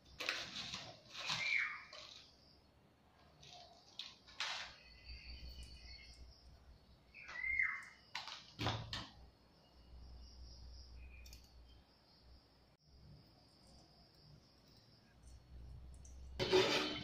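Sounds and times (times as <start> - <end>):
faint bird chirping: 0.0 - 16.4.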